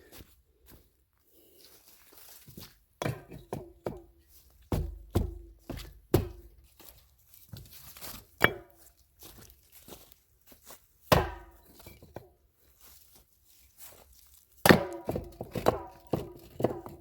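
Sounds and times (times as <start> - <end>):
stones and bricks knocking: 3.0 - 4.1, 4.7 - 6.5, 11.1 - 12.3, 14.6 - 17.0.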